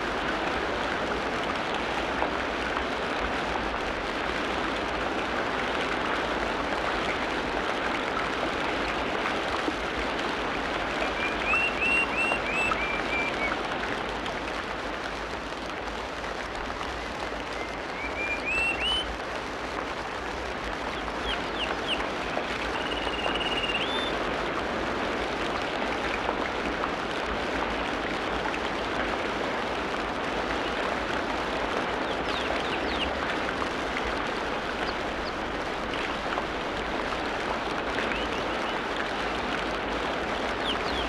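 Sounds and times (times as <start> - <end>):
birds chirping and whistling: 22.8 - 24.1.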